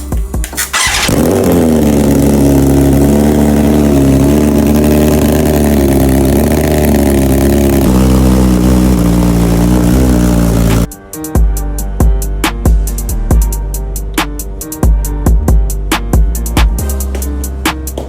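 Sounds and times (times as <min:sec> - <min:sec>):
motorcycle engine idling: 0:00.6 - 0:10.9
motorcycle engine bark: 0:00.7 - 0:10.9.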